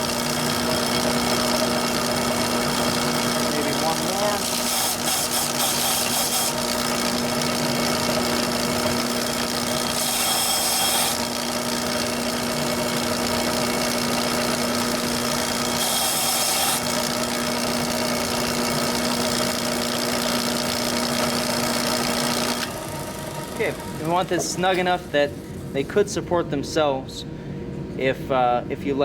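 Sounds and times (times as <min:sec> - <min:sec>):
electric sander humming: 0:00.0 - 0:26.2
wood hissing against sander: 0:13.0 - 0:17.3.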